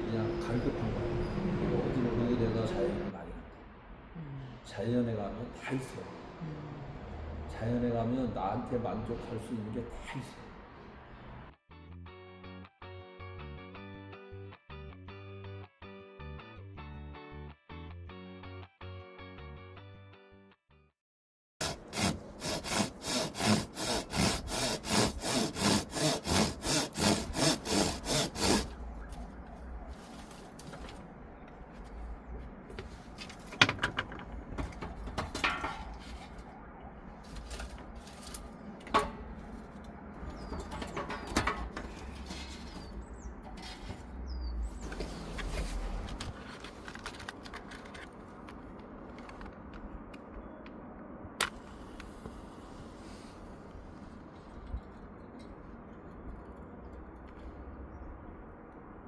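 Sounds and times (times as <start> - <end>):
hand tool strokes on wood: 21.6 - 28.7
handling knocks and clicks: 32.8 - 36.4, 37.4 - 42.8.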